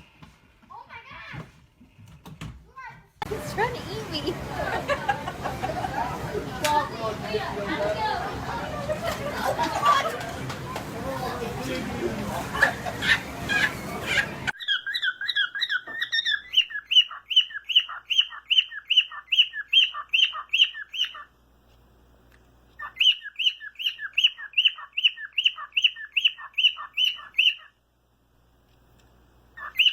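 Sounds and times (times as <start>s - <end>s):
bird squawking chirps: 13.1s - 21.3s, 22.8s - 27.8s, 29.6s - 29.9s.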